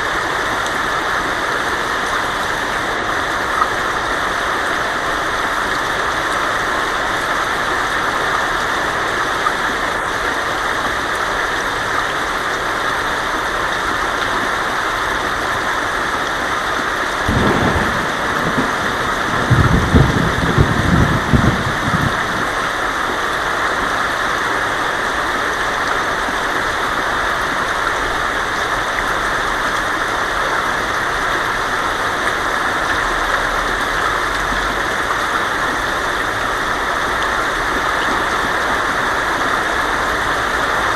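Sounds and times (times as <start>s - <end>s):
heavy rain on a tin roof: 0.0s - 40.9s
thunder rumbling: 17.2s - 22.9s.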